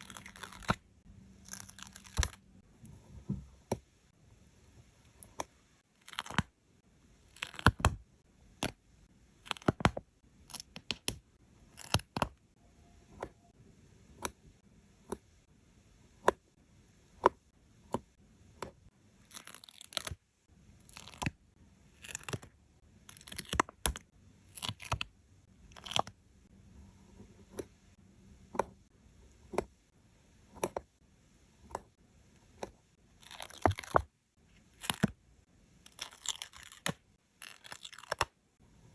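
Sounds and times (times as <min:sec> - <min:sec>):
stickers peeling and crackling: 0:35.9 - 0:38.3.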